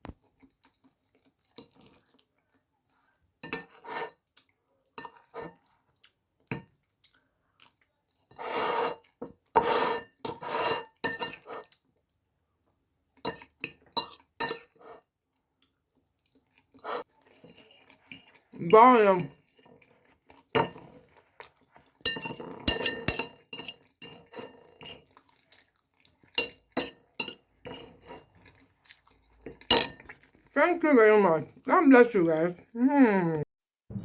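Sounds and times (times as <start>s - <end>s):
metal cutlery clinking on crockery: 9.6s - 11.7s, 22.1s - 25.2s, 26.4s - 28.3s, 29.5s - 30.1s.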